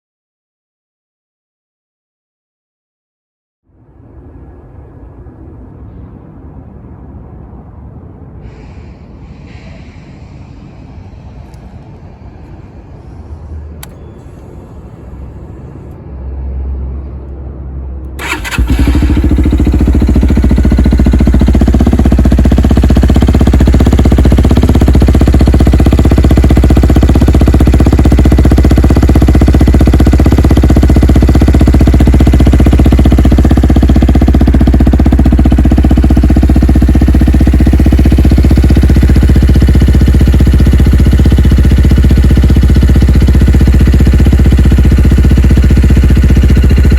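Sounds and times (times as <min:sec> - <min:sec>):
click: 0:13.8 - 0:14.5
motorcycle engine starting and idling: 0:18.0 - 0:46.9.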